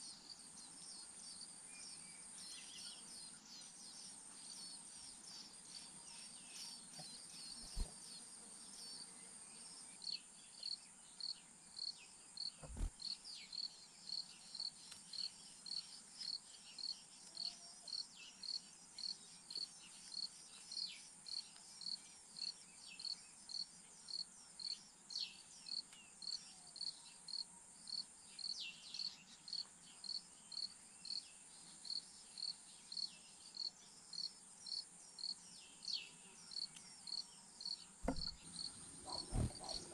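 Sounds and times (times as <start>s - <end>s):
soft thumps: 12.6s - 13.0s, 38.0s - 38.4s, 39.1s - 39.9s
pulsing insect chirp: 31.9s - 39.9s.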